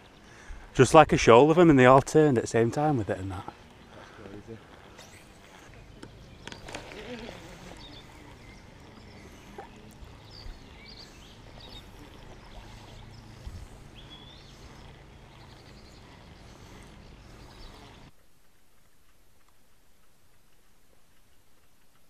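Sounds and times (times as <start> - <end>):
small birds chirping: 0.0 - 18.2.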